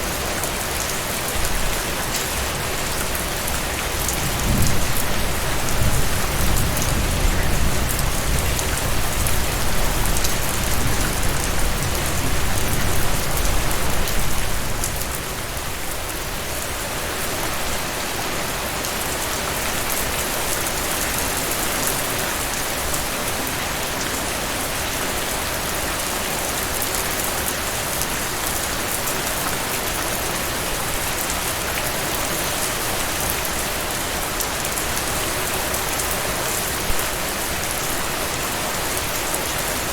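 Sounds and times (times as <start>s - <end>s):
heavy rain falling: 0.0s - 39.9s
low rumble of thunder: 4.2s - 14.9s.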